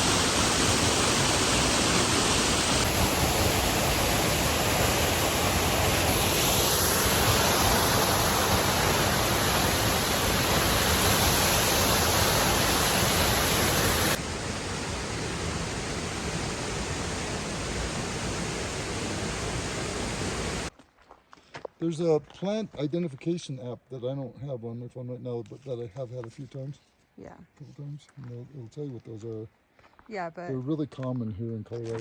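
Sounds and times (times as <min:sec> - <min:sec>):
waterfall rushing: 0:00.0 - 0:20.7.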